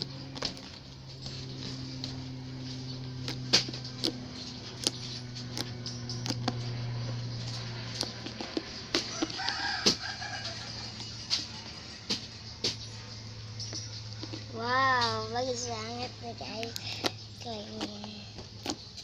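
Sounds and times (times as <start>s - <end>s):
steady low hum: 0.0s - 19.0s
rooster crowing: 9.0s - 11.3s.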